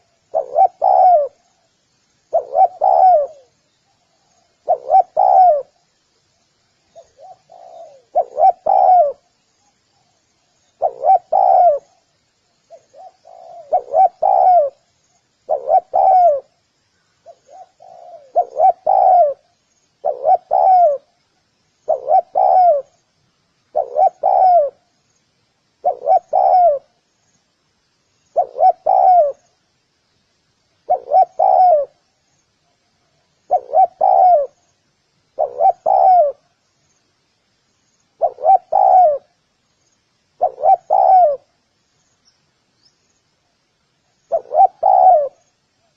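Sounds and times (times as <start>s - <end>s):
dove cooing: 0.0s - 1.6s, 2.3s - 3.6s, 4.2s - 5.8s, 6.9s - 9.4s, 10.6s - 12.1s, 12.7s - 14.8s, 15.4s - 16.6s, 17.2s - 21.2s, 21.8s - 23.0s, 23.7s - 24.9s, 25.8s - 27.0s, 28.3s - 29.6s, 30.8s - 32.1s, 33.3s - 34.7s, 35.3s - 36.6s, 38.2s - 39.4s, 40.4s - 41.6s, 44.3s - 45.4s.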